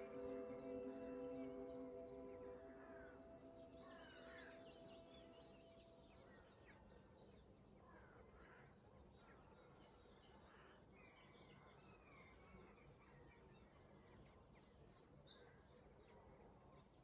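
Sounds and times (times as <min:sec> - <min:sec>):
held musical chord: 0:00.0 - 0:06.2
faint birdsong chirps: 0:00.0 - 0:17.0.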